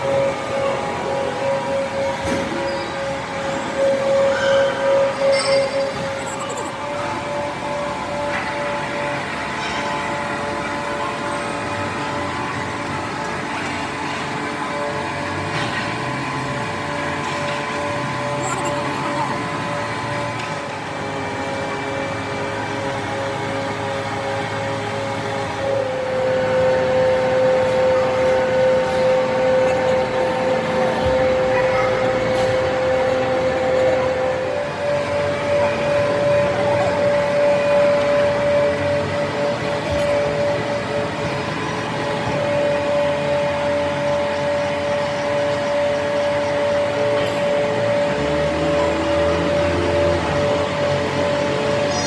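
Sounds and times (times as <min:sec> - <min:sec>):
machine whining: 0:00.0 - 0:52.0
noisy background: 0:00.0 - 0:52.0.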